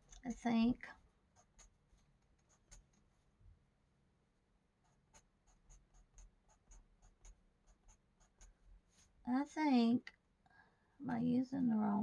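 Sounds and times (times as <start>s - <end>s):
pencil scratching on paper: 0.0s - 3.3s, 4.8s - 9.2s.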